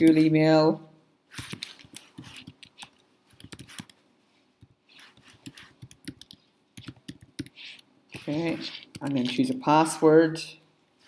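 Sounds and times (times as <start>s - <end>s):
computer keyboard typing: 1.4s - 4.0s, 5.1s - 9.6s.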